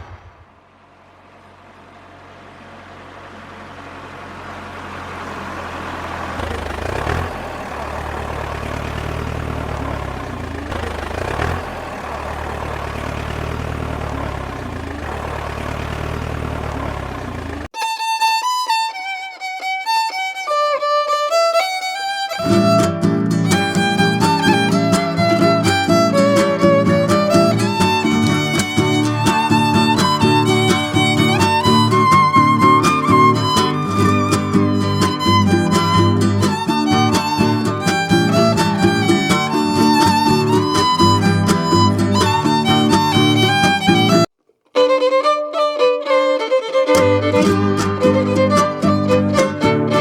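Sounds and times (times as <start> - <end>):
steady engine hum: 0.0 - 50.0
violin melody: 17.7 - 50.0.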